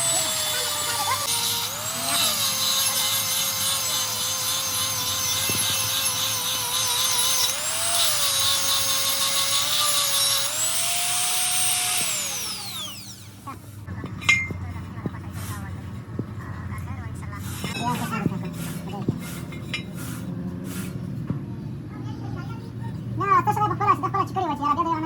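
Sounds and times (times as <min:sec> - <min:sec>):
grinder disc spinning down: 0:00.0 - 0:13.4
angle grinder grinding metal: 0:00.0 - 0:13.5.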